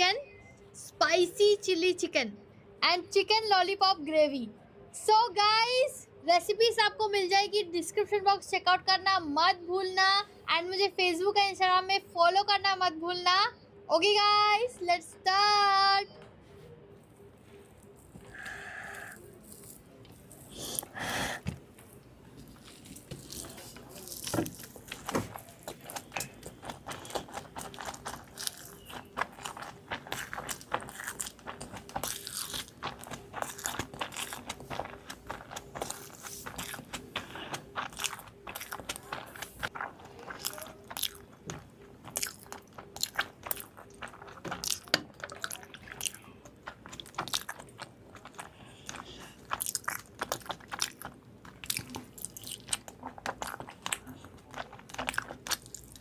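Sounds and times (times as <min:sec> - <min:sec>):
crunching and chewing food: 0:16.9 - 0:56.0.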